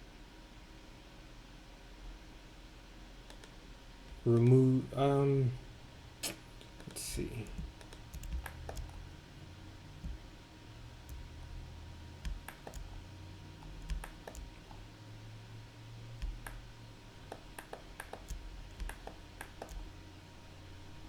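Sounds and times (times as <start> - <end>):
faint low hum: 0.0 - 21.0
mouse and keyboard clicks: 3.3 - 4.5, 6.2 - 9.0, 12.2 - 13.0, 13.6 - 14.6, 16.2 - 16.6, 17.3 - 19.9.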